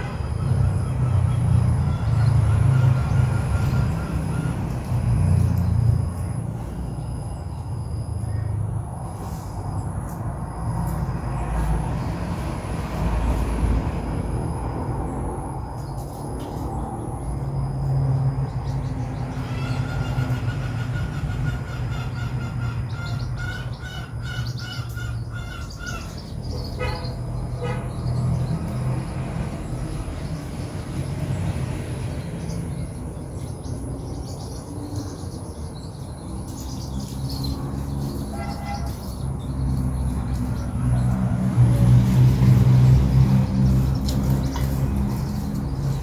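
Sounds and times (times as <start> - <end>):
bird chicks peeping: 15.8 - 46.0.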